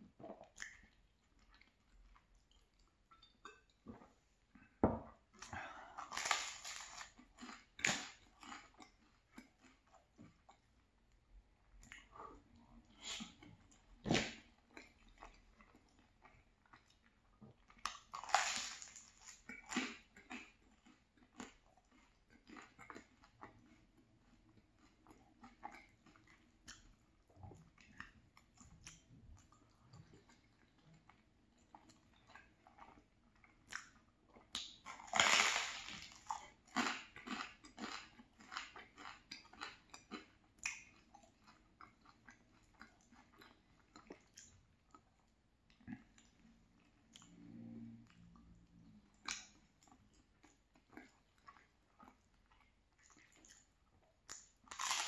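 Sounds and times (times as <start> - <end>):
chewing food: 0.1 - 55.0.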